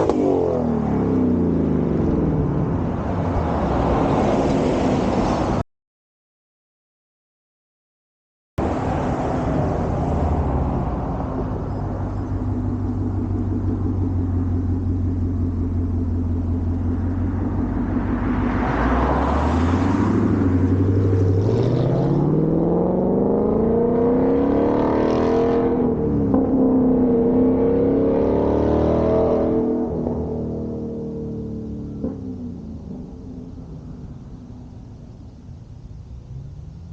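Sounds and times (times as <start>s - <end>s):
car engine accelerating: 8.6s - 34.8s.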